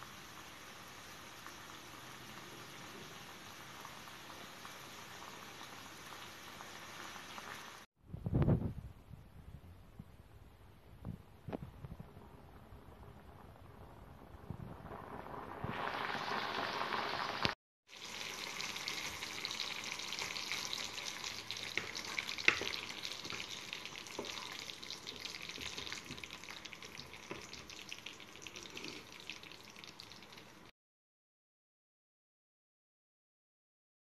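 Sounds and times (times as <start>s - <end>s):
chicken wings frying sizzle: 0.0s - 7.9s, 12.2s - 30.7s.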